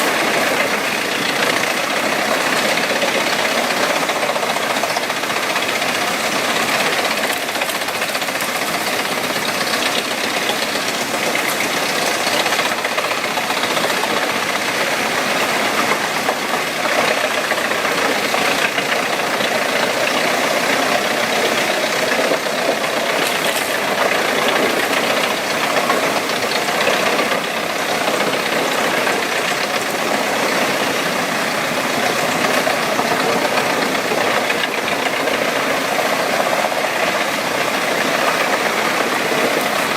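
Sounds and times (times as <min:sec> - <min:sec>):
wood chipper engine running: 0:00.0 - 0:39.9.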